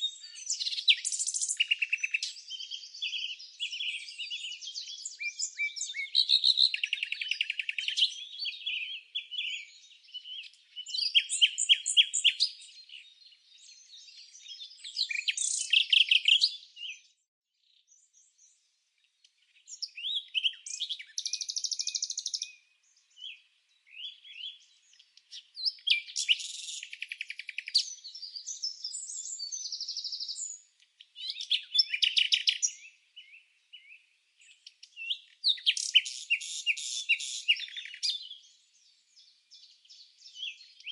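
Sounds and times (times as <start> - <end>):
songbirds chirping and trilling: 0.0 - 40.9.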